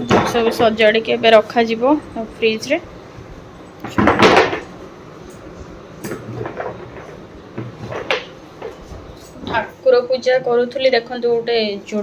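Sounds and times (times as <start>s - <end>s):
containers knocking and clattering: 0.0s - 0.9s, 3.8s - 9.8s.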